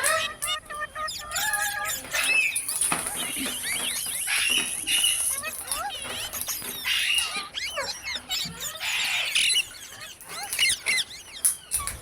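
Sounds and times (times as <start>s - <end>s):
parrot squawks: 0.0s - 12.0s
parrots chirping and squeaking: 0.0s - 12.0s.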